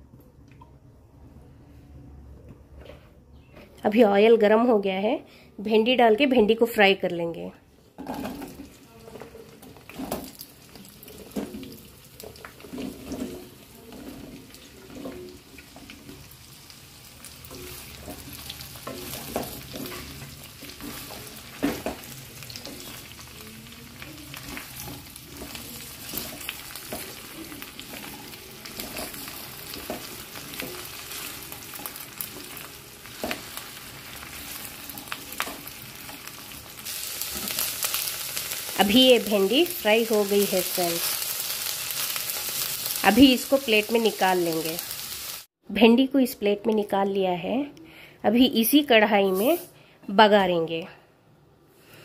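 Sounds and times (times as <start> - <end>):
okra sizzling in hot oil: 8.0 - 45.6
wooden spatula scraping a pan: 12.5 - 16.3.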